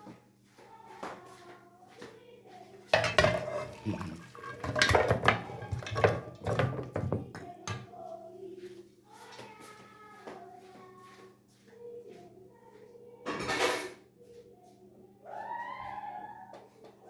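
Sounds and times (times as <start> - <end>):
dishes and cutlery clattering: 3.0 - 7.9.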